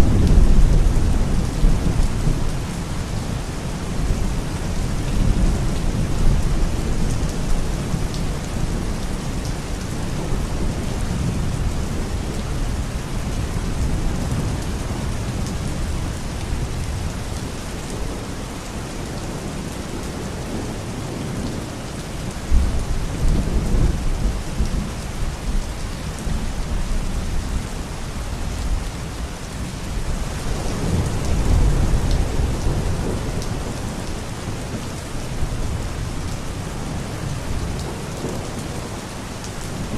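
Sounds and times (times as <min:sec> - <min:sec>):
low rolling thunder: 0:00.0 - 0:08.9, 0:22.5 - 0:27.7, 0:30.0 - 0:39.0
steady rain falling: 0:00.0 - 0:39.9.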